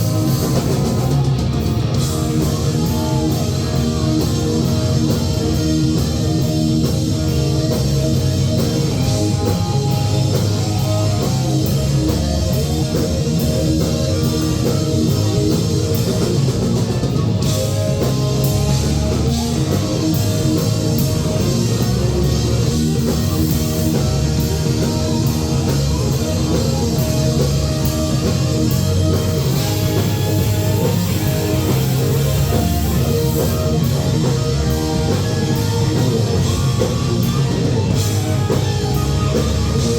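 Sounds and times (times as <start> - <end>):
drum kit: 0.0 - 39.9
electric guitar: 0.0 - 39.9
rock band playing live: 0.0 - 39.9.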